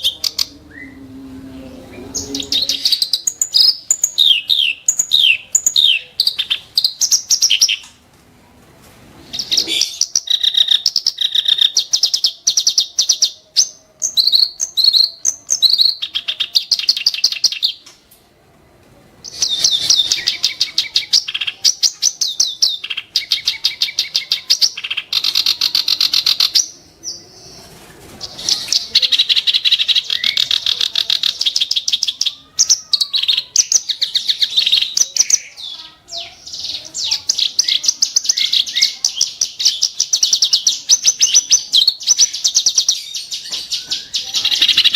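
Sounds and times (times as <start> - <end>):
reed warbler singing: 1.9 - 7.9.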